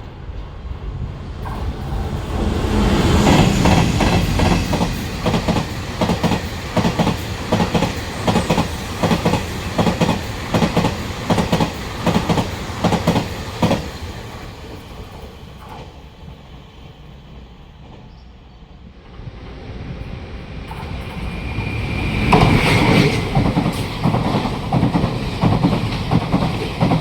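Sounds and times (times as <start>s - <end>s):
train rumble: 0.0s - 27.0s
train wheels clacking over rail joints: 3.2s - 14.0s, 22.3s - 27.0s.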